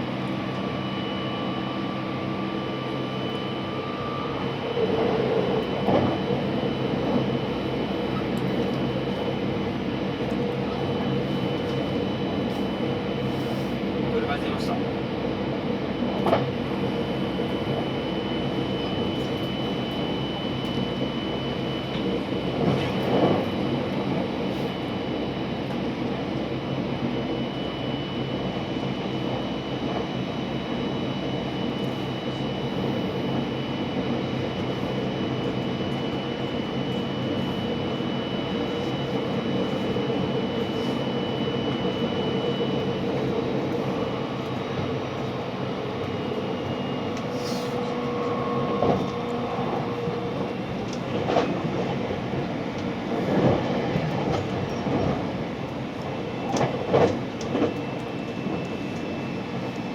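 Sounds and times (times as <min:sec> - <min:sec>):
train wheels rumbling on rail: 0:17.4 - 0:24.6, 0:31.6 - 0:59.9
train clatter: 0:56.5 - 0:57.8.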